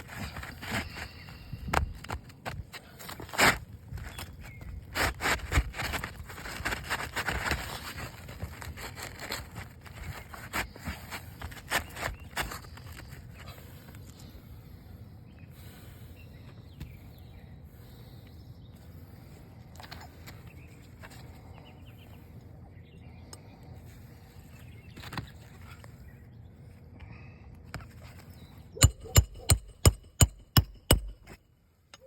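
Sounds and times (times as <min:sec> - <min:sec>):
hammer striking nails: 0:28.8 - 0:31.4.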